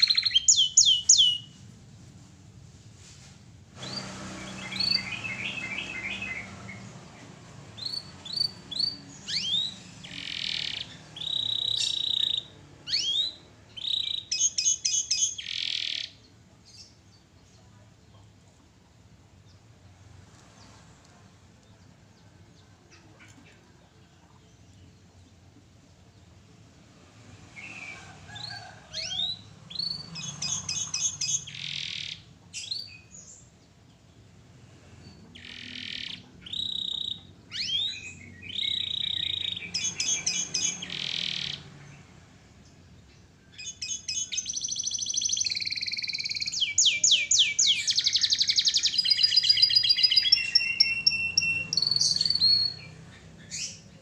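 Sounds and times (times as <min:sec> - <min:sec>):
canary singing: 0:00.0 - 0:01.6, 0:03.8 - 0:17.2, 0:27.6 - 0:33.6, 0:35.0 - 0:42.2, 0:42.8 - 0:54.0.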